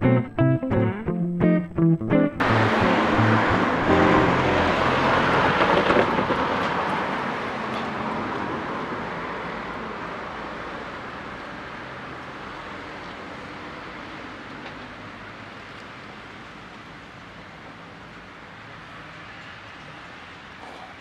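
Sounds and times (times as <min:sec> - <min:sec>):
car driving over tracks: 0:02.4 - 0:07.8
train rumbling: 0:02.4 - 0:08.5.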